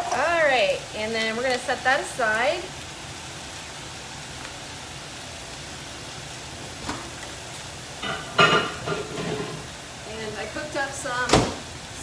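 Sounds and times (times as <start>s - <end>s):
chicken sizzling in a pan: 0.0s - 12.0s
kitchenware clattering: 8.0s - 9.7s.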